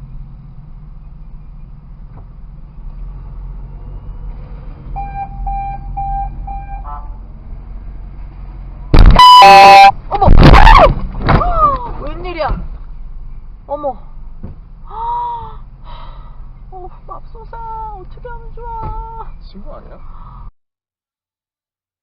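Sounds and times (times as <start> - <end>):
car road and engine hum: 0.0 - 20.5
short electronic beeps: 5.0 - 6.9, 9.0 - 10.0
loud horn blast: 6.5 - 7.2, 9.0 - 9.9.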